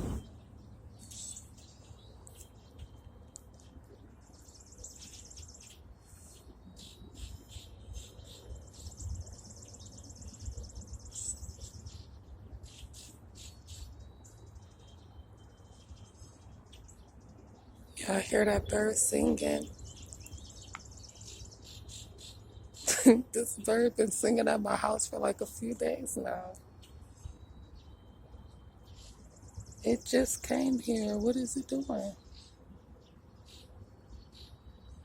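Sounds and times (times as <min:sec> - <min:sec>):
faint low rumble: 0:00.0 - 0:01.0
songbird chirping and trilling: 0:00.0 - 0:35.0.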